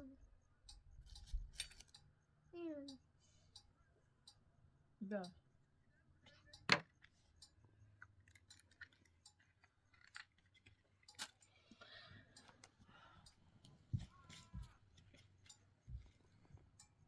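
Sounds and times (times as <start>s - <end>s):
faint clicks and handling noises: 0.7s - 2.2s, 6.3s - 17.0s.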